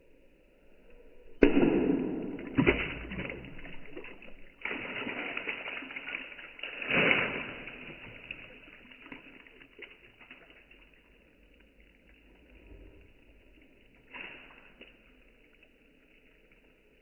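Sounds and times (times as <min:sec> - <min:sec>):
tile shards splashing into water: 0:02.2 - 0:10.7.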